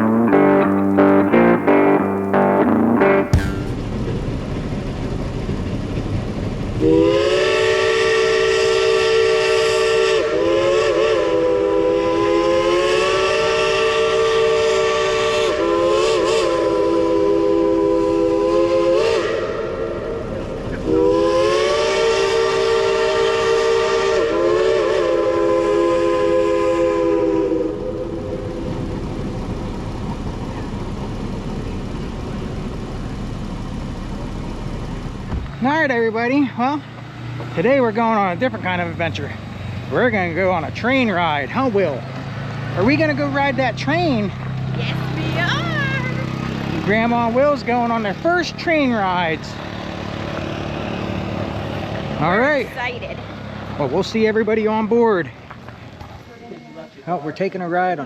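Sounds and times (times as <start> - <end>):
steam locomotive chime whistle: 6.8 - 29.0, 56.3 - 57.7.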